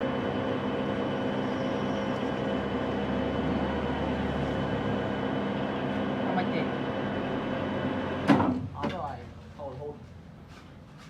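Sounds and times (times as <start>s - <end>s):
machine humming steadily: 0.0s - 8.8s.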